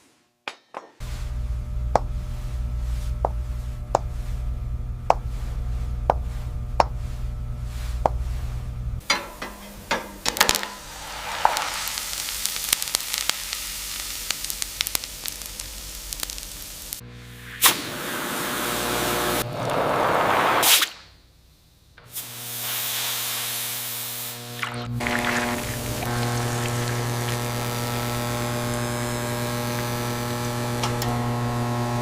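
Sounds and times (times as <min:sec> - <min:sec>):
low electrical hum: 0:01.0 - 0:11.2, 0:24.0 - 0:32.0
fizzing crackling hiss: 0:10.3 - 0:17.0, 0:24.6 - 0:28.2.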